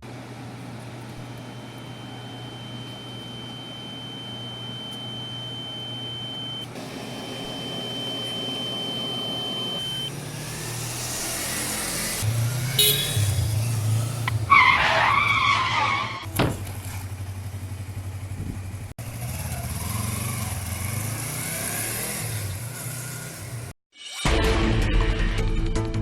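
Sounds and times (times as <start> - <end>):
high steady beep tone: 2.1 - 10.1.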